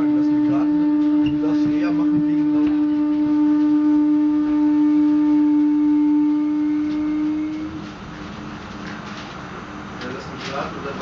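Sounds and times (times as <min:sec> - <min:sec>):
train droning tone: 0:00.0 - 0:11.0.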